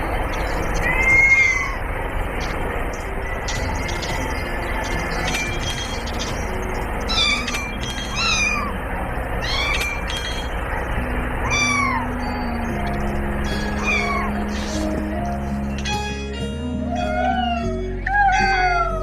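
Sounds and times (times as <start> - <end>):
cat meowing: 0.8 - 1.8, 7.1 - 8.8, 9.4 - 10.0, 11.4 - 12.1, 13.8 - 14.5, 16.9 - 19.0.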